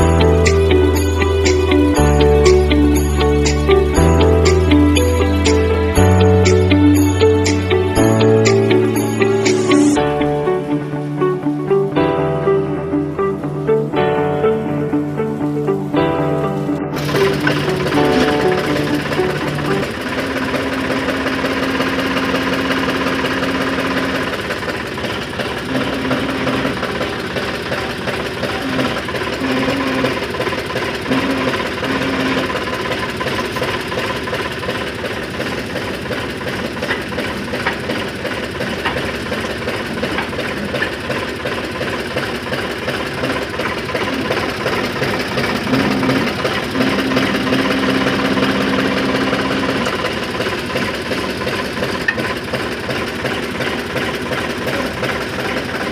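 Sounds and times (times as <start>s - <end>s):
tractor diesel engine hum: 0.0s - 55.9s
continuous rattling clatter: 17.0s - 55.9s.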